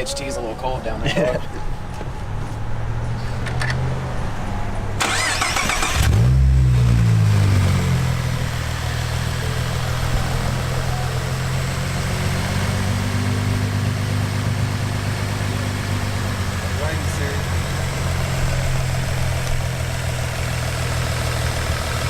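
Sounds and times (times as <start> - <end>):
car engine revving and idling: 2.4 - 22.0
car starter cranking: 5.0 - 6.5
low engine idle: 13.3 - 22.0.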